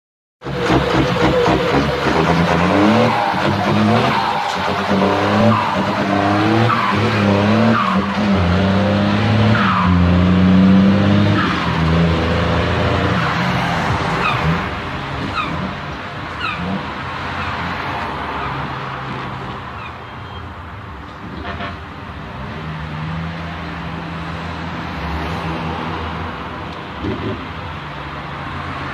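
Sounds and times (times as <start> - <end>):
diesel truck engine revving: 0.4 - 17.6.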